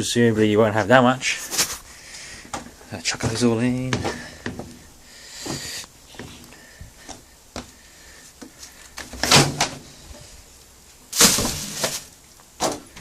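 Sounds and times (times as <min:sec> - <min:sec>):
laundry rustling thumps: 0:11.1 - 0:13.0.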